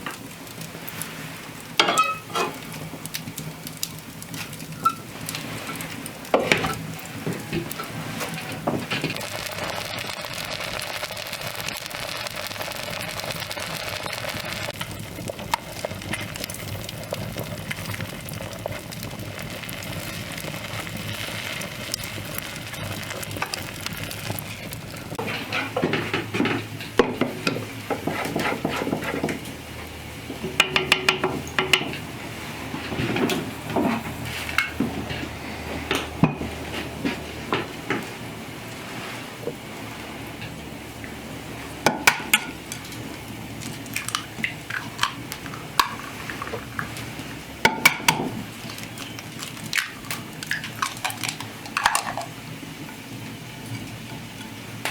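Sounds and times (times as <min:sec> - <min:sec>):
food sizzling: 0:00.0 - 0:54.9
utensil scraping and clinking cookware: 0:01.8 - 0:02.8, 0:22.3 - 0:37.7.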